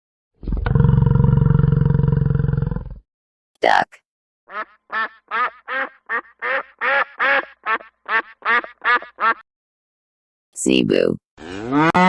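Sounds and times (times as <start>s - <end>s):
duck quacking: 4.5s - 9.4s.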